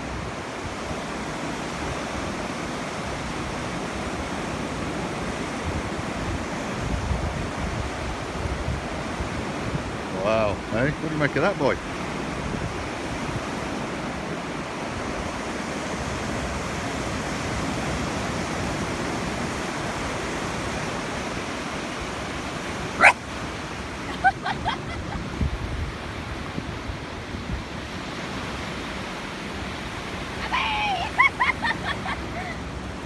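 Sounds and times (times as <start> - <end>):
waves breaking on shore: 0.0 - 33.0
dog barking: 22.9 - 23.3.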